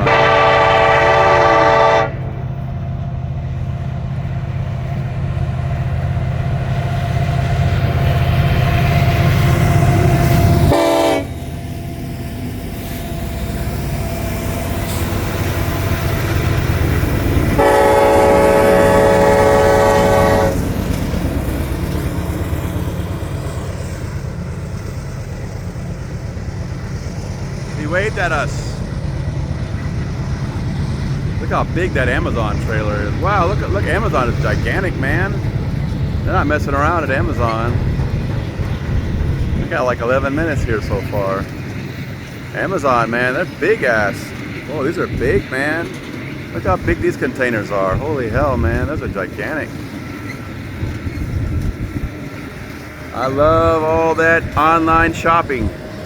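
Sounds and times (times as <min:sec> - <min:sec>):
train air horn: 0:00.0 - 0:02.3, 0:10.6 - 0:11.4, 0:17.6 - 0:20.6
locomotive rumble: 0:00.0 - 0:56.0
container cars rolling: 0:11.6 - 0:56.0.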